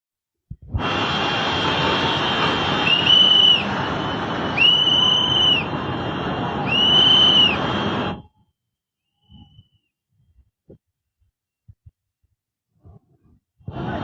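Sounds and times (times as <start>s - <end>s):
whistle blasts: 2.1s - 5.8s, 6.6s - 9.9s.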